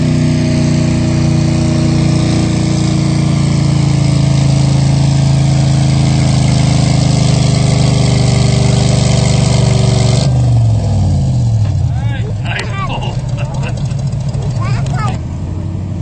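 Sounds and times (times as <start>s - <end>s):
tractor engine under load: 11.4s - 16.0s.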